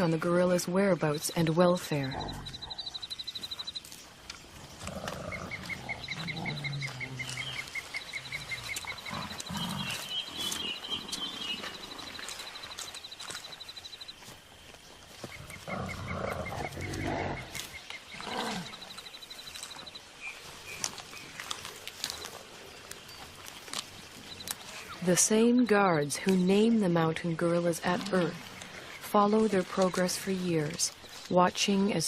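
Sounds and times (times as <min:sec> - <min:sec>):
gorillas grunting: 0:04.8 - 0:11.4, 0:15.3 - 0:18.8.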